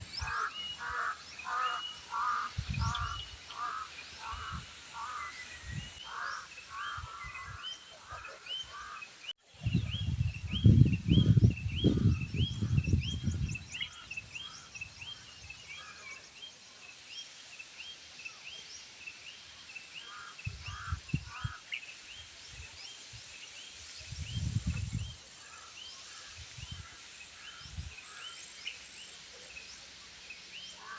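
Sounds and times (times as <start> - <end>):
crows cawing: 0.2 - 5.3, 6.1 - 7.6, 20.1 - 21.6.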